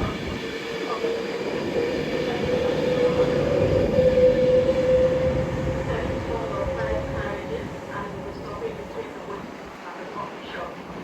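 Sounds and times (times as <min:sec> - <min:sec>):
train whine rising in pitch: 0:00.0 - 0:09.0
train low rumble: 0:00.0 - 0:11.0.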